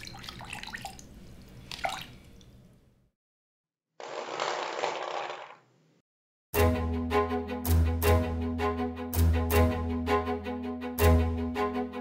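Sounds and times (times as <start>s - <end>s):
paint pouring: 0.0s - 2.6s, 4.0s - 5.7s.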